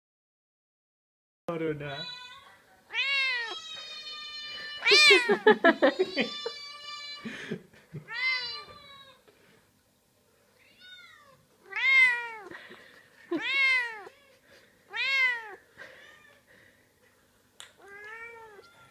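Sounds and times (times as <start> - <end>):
cat meowing: 1.9 - 7.2, 8.1 - 9.2, 10.6 - 12.5, 13.3 - 16.4, 17.8 - 18.9.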